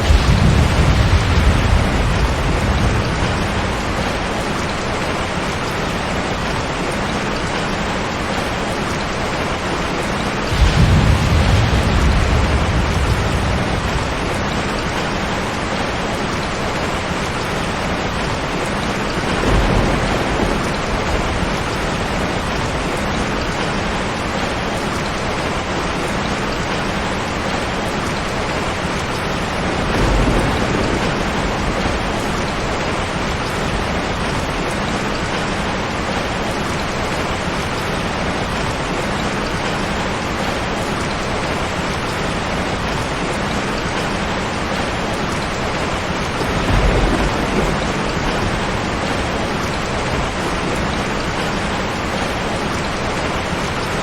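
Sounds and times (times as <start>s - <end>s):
heavy rain falling: 0.0s - 54.0s
low rumbles: 10.4s - 15.7s.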